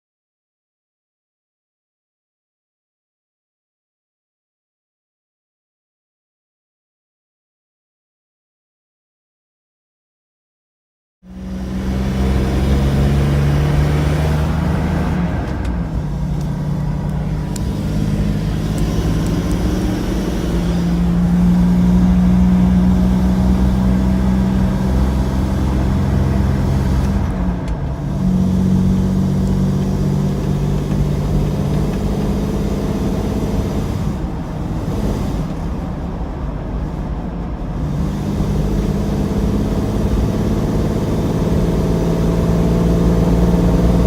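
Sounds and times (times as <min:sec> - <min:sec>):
car engine hesitating: 0:11.4 - 0:44.0.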